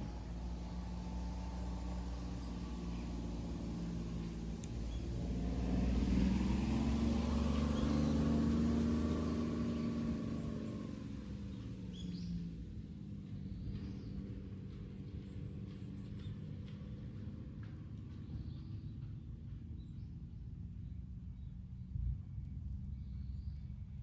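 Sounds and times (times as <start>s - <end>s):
vehicle passing by: 0.0s - 18.8s.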